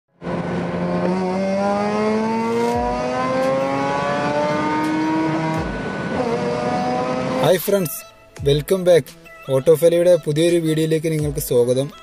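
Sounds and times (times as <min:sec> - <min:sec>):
sports car engine accelerating: 0:00.2 - 0:07.5.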